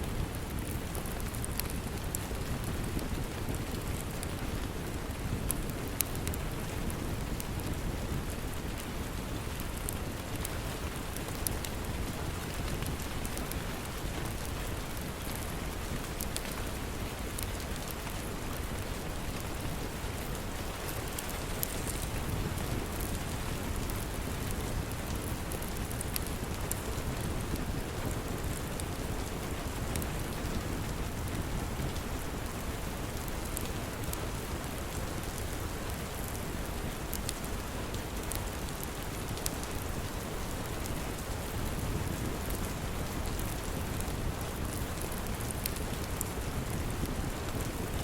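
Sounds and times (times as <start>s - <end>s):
steady rain: 0.0s - 48.0s
wood fire crackling: 0.0s - 48.0s.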